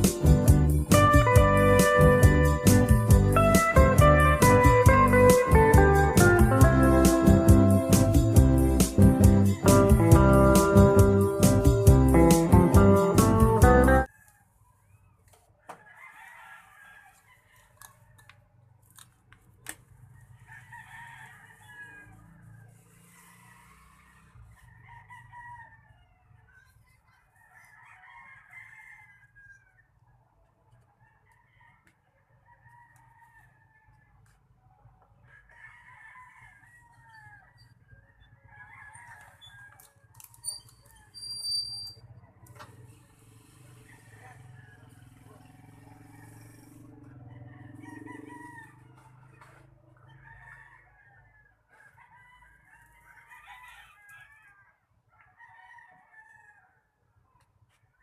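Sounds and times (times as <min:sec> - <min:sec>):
rooster crowing: 0:15.6 - 0:18.4, 0:20.0 - 0:30.0, 0:31.0 - 0:34.4, 0:35.2 - 0:41.4, 0:43.6 - 0:57.0.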